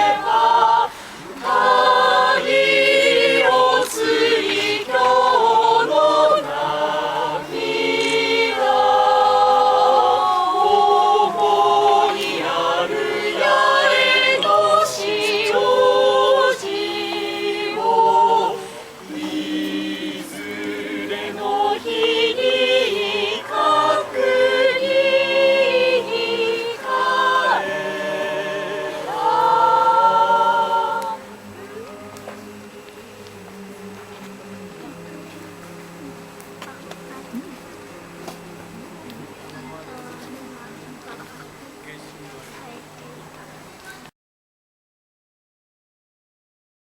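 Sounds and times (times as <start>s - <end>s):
choir singing: 0.0s - 42.1s.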